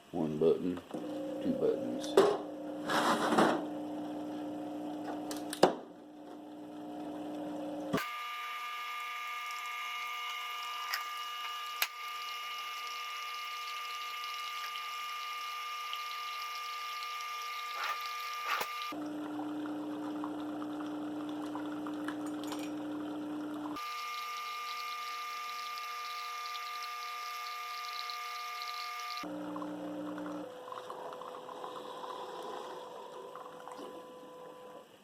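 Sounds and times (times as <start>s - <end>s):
coffee maker electrical hum: 0.0s - 35.0s
high-pitched whine: 23.8s - 29.3s.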